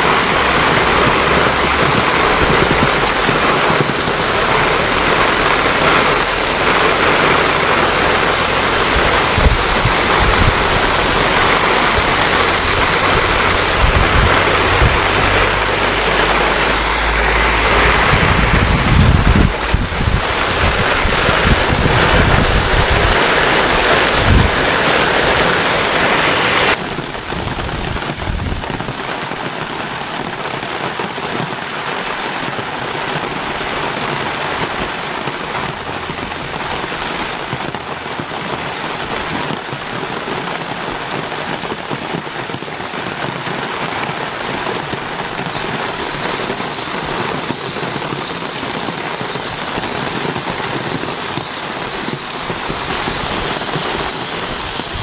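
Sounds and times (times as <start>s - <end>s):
low rumbling: 0.0s - 28.8s
heavy rain hissing: 0.0s - 55.0s.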